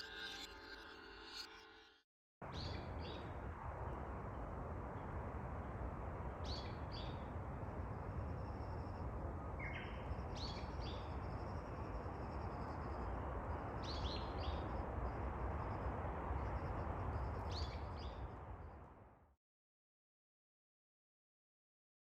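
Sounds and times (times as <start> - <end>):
outdoor background hiss: 2.5 - 19.0.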